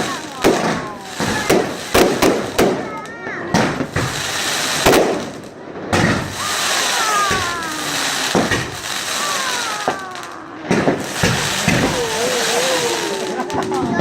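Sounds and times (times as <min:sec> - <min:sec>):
crackling hiss: 0:00.0 - 0:14.0
fireworks shells bursting: 0:00.0 - 0:14.0
descending firework whistles: 0:06.0 - 0:13.6.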